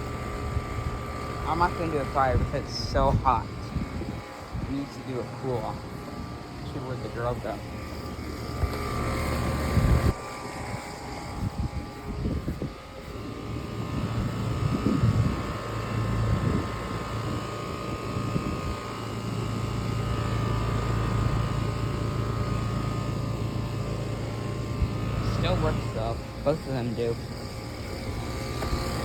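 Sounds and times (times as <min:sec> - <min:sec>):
air conditioner units humming: 0:00.0 - 0:29.0
wind on microphone: 0:02.2 - 0:06.3, 0:08.5 - 0:18.9.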